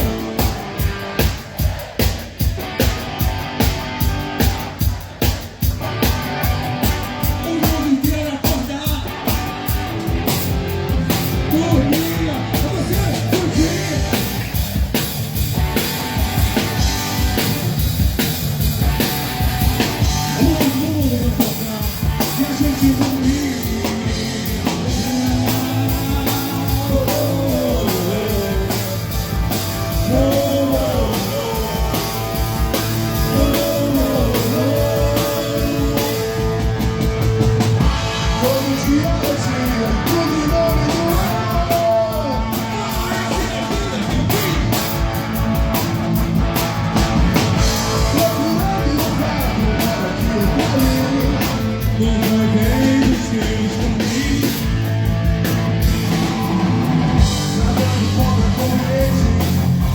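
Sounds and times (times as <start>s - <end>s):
drum kit: 0.0s - 59.9s
electric guitar: 0.0s - 59.9s
man singing: 6.8s - 9.5s, 10.2s - 14.6s, 19.8s - 45.1s, 47.6s - 55.1s, 55.9s - 59.9s.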